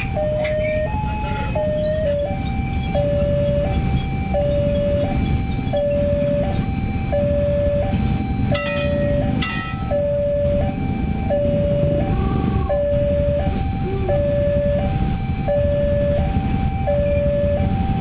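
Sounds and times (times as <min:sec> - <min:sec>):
two-note electronic warning chime: 0:00.2 - 0:10.6.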